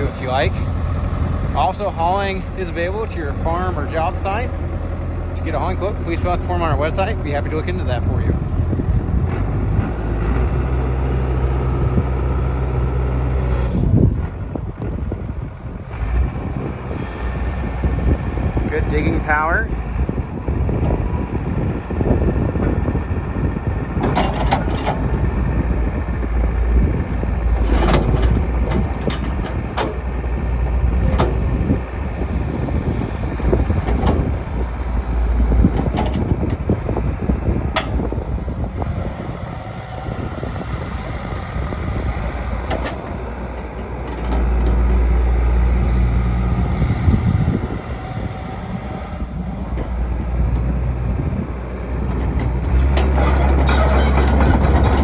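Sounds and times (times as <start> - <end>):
excavator diesel engine: 0.0 - 55.0
excavator bucket knocks and scrapes: 24.0 - 25.3, 27.5 - 30.2, 52.2 - 55.0.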